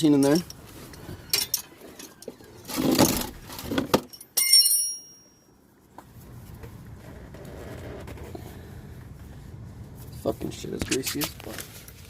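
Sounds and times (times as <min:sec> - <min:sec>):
metal tools clattering: 0:00.0 - 0:05.5
ringing metallic clink: 0:04.1 - 0:05.6.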